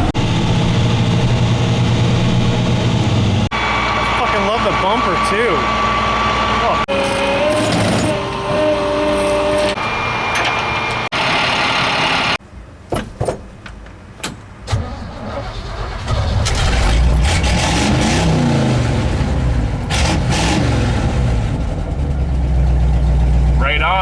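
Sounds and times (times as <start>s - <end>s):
big engine revving: 0.0s - 12.4s, 15.8s - 22.4s
vehicle engine running: 0.0s - 12.4s, 17.2s - 24.0s.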